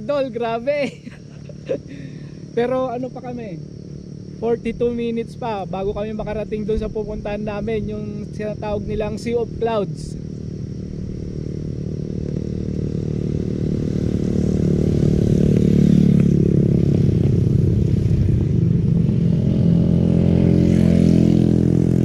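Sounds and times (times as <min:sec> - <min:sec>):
scooter engine running: 0:07.6 - 0:22.0.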